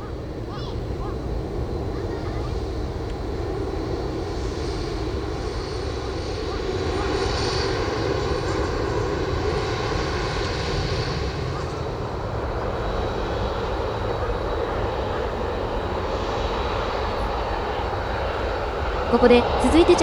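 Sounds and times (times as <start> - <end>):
jet airliner engines running: 0.0 - 20.0.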